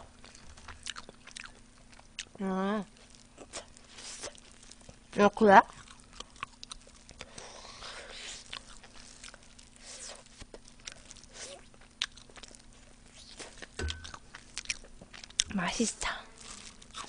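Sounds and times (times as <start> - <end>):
chewing fried chicken: 0.1 - 17.0.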